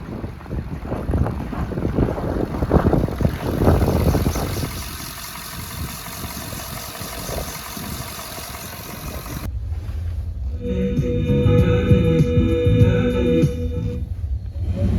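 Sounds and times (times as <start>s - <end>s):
pickup truck engine running: 0.0s - 9.5s
wind noise on microphone: 0.0s - 14.9s.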